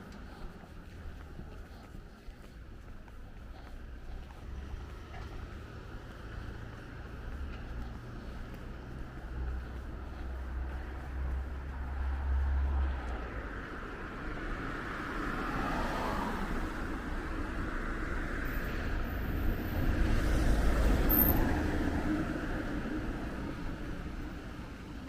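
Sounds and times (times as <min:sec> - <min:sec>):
cars passing: 0:00.0 - 0:25.0.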